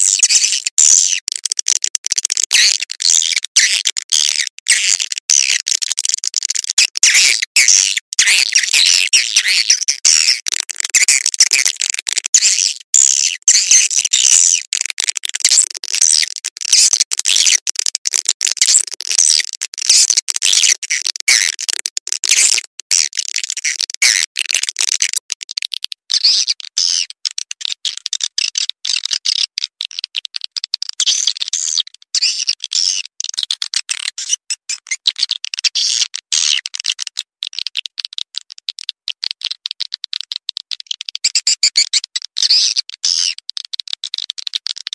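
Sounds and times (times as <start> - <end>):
swiftlets chirping and clicking: 41.1 - 42.1.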